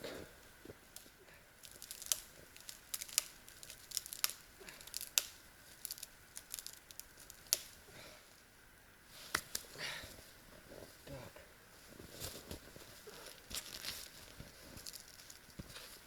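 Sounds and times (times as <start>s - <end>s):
twigs crinkling: 0.9s - 7.8s, 11.8s - 16.0s
twigs snapping: 0.9s - 7.8s, 9.3s - 9.7s.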